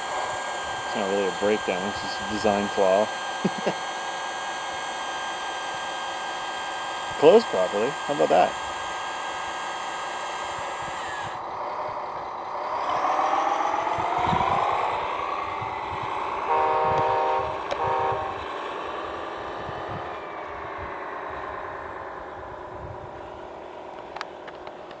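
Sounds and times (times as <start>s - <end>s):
toy truck motor whining: 0.0s - 20.4s
horn blasts: 16.5s - 18.5s.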